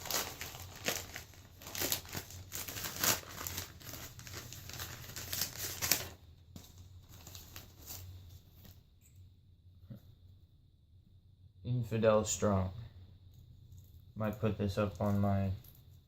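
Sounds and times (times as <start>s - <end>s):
wrapper crinkling and tearing: 0.0s - 6.2s, 7.0s - 8.1s.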